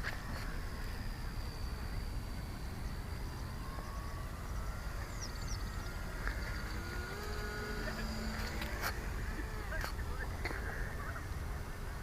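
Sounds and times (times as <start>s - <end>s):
model airplane motor whining: 0.0s - 12.0s
bird chirping: 1.5s - 8.8s.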